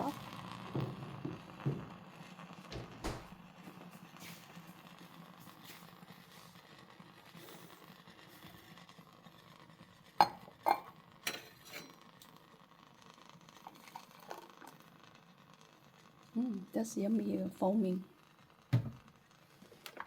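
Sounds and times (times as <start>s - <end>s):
dishes clinking: 10.2s - 12.0s.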